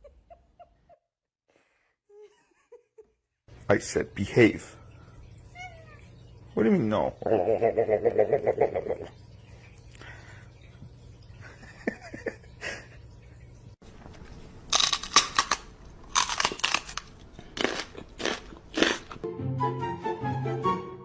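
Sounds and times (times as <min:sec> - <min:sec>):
loud crunching bursts: 0:14.7 - 0:19.2
music with held notes: 0:19.2 - 0:21.0.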